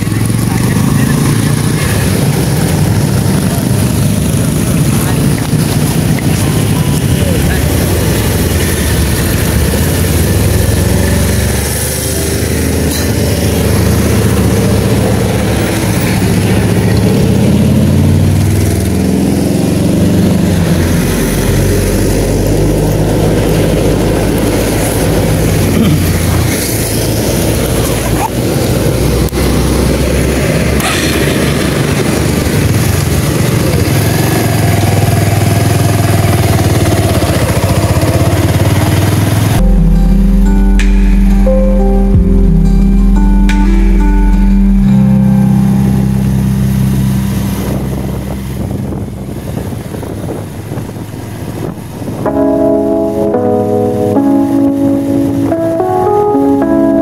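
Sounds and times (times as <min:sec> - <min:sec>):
motorcycle engine revving: 0:00.0 - 0:41.1.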